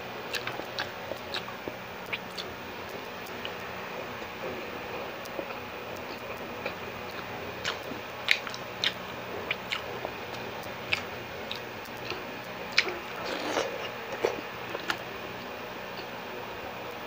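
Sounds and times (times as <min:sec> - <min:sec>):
wet chewing and mouth smacks: 0:05.3 - 0:15.0.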